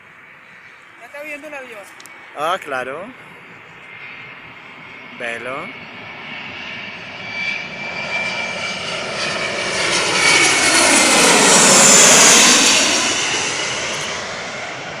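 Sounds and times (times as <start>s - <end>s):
large airliner passing: 0.0s - 15.0s.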